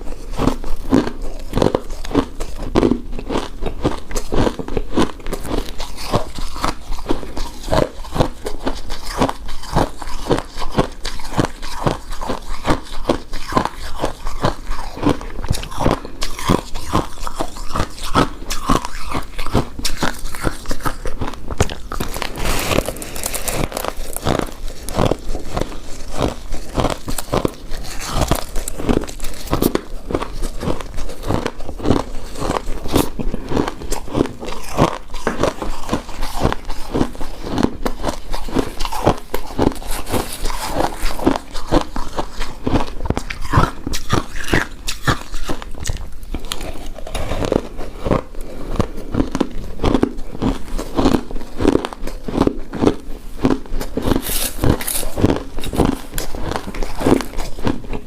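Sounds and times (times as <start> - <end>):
person chewing sticky food: 0.0 - 58.0.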